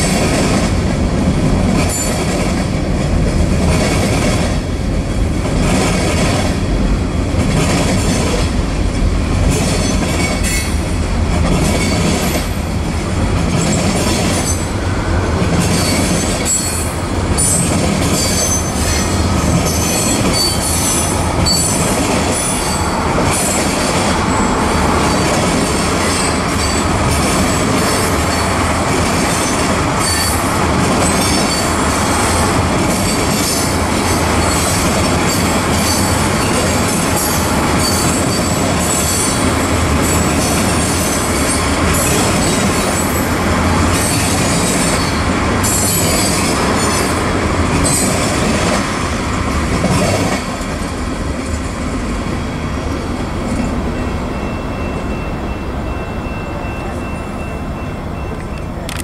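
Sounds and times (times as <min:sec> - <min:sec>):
steel wheels rumbling on rail: 0:00.0 - 0:59.0
train wheels clacking: 0:09.4 - 0:49.0
high-pitched wheel squeal: 0:15.7 - 0:23.6.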